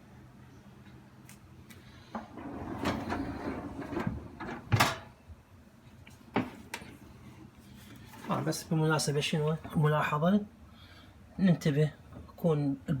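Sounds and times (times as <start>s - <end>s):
dishwasher rack sliding: 2.2s - 5.1s.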